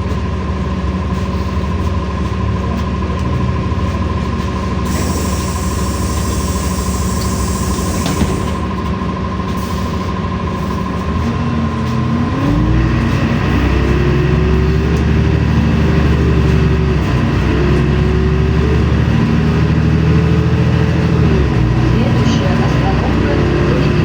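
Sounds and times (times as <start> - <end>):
bus drivetrain whine: 0.0 - 24.0
bus engine accelerating: 0.0 - 24.0.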